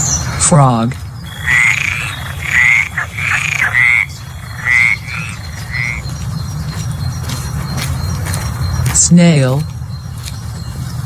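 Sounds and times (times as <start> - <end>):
low background noise: 0.0 - 11.0
frog croaking: 1.2 - 6.8.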